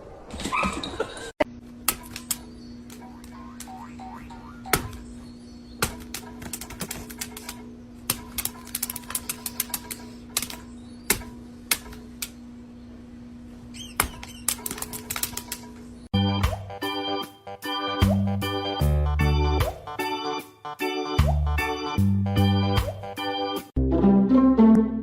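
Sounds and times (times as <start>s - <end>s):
short high squeak: 13.7s - 14.5s.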